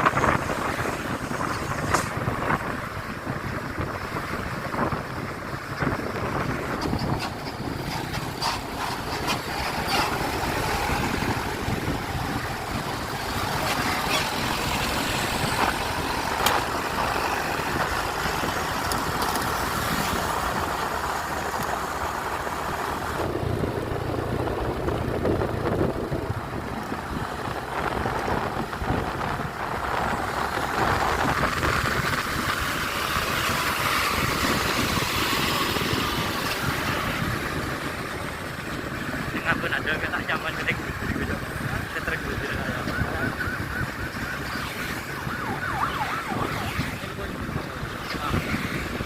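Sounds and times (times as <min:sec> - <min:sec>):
truck engine running: 0:00.0 - 0:49.0.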